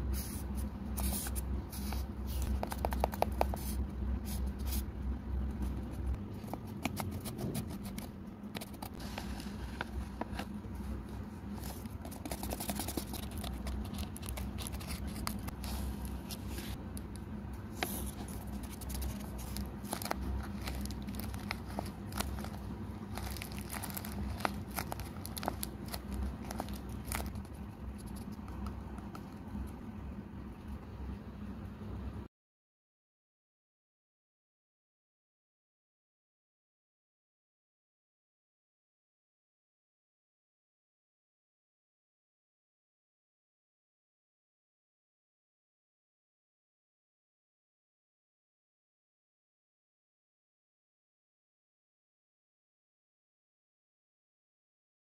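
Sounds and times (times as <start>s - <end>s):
steady low hum: 0.0s - 32.3s
small sharp clicks and scratches: 1.0s - 3.8s
paper crinkling and tearing: 17.8s - 28.4s.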